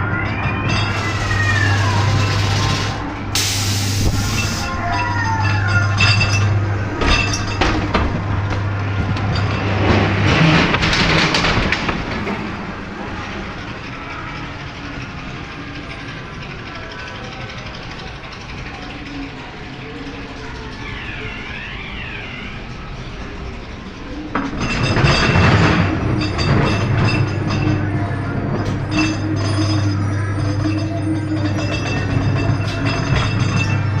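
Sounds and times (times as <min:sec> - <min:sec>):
eerie sliding wails: 0:00.0 - 0:34.0
ride car clicking along track: 0:00.0 - 0:34.0
loud hissing burst: 0:01.0 - 0:04.7.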